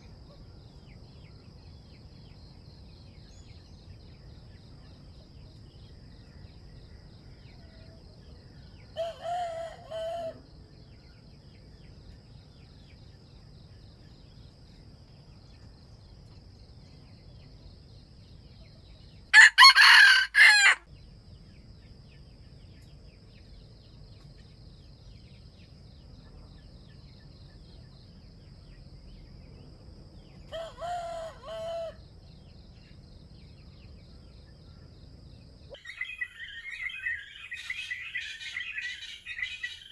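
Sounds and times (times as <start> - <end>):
high insect drone: 0.0 - 39.9
roosters crowing: 9.0 - 10.4, 19.3 - 20.9, 30.5 - 32.0.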